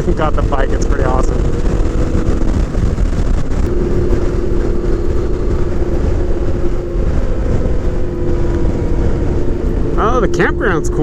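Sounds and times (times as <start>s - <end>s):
motorcycle engine cruising: 0.0s - 11.0s
wind noise on microphone: 0.0s - 11.0s.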